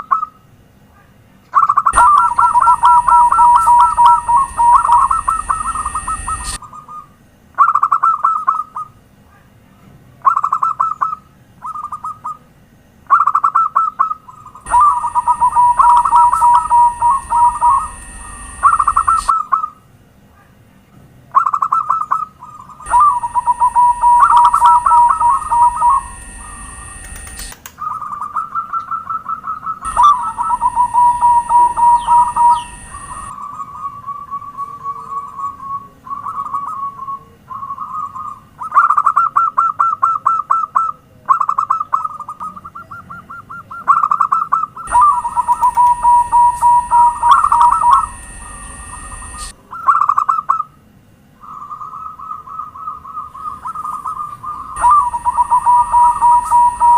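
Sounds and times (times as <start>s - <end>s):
doves cooing: 1.6s - 9.0s, 13.1s - 19.8s, 21.3s - 50.7s, 51.4s - 56.9s
high-pitched whine: 1.8s - 7.2s, 14.3s - 19.7s, 22.6s - 38.6s, 44.8s - 50.6s, 51.4s - 56.9s.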